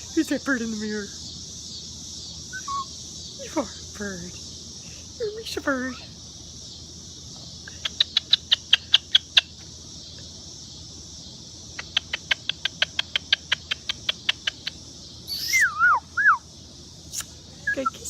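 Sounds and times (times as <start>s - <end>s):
hiss of insects: 0.0s - 18.0s
gliding whistle-like bird call: 2.5s - 2.9s, 15.3s - 16.4s
cockatoo beak clicks: 7.7s - 9.3s, 11.8s - 15.6s, 17.1s - 17.3s.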